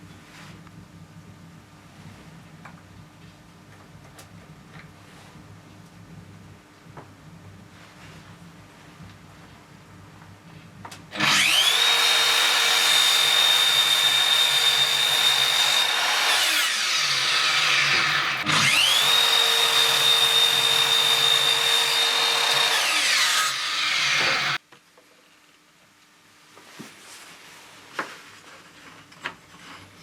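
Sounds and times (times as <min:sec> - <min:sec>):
power tool motor whining: 0:11.2 - 0:24.6.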